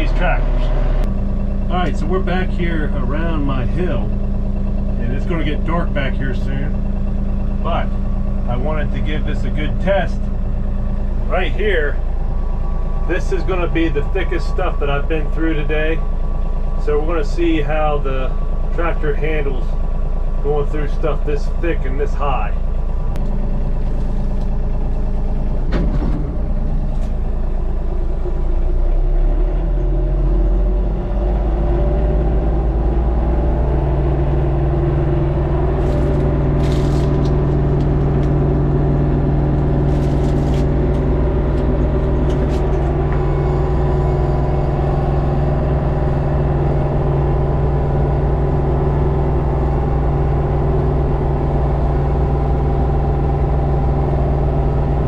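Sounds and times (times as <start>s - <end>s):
tractor diesel engine under load: 0.0s - 55.0s
mower cutting through brush: 35.7s - 38.6s, 39.5s - 42.9s.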